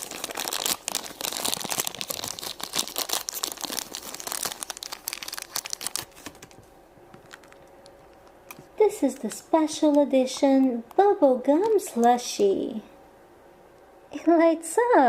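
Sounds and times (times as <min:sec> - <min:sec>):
plastic packaging crinkling and tearing: 0:00.0 - 0:10.0.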